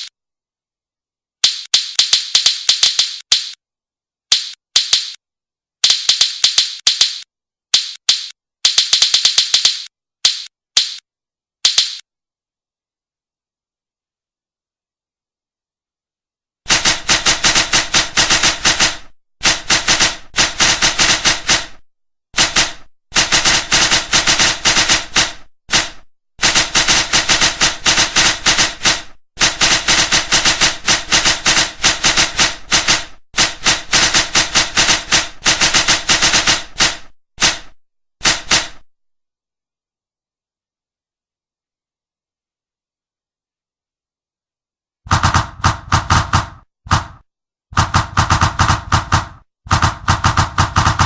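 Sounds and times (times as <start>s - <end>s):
typing sound effect: 1.4s - 3.6s, 4.3s - 5.2s, 5.8s - 11.0s, 11.6s - 12.0s, 47.8s - 51.0s.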